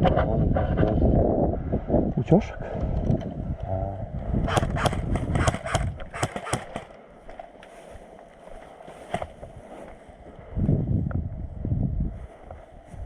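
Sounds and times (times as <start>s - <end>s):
airsoft gun shots: 4.5s - 6.9s.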